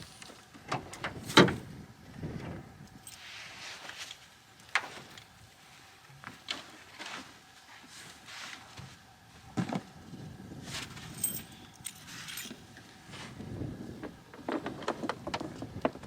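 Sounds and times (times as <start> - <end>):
gear knocks and clunks: 0.0 - 1.7.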